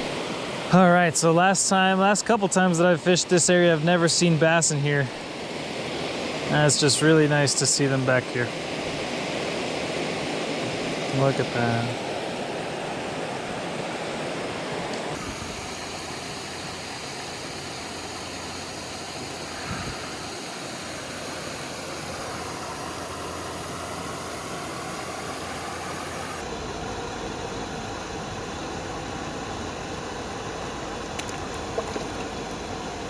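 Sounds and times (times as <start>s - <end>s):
small waterfall rushing: 15.2s - 26.4s.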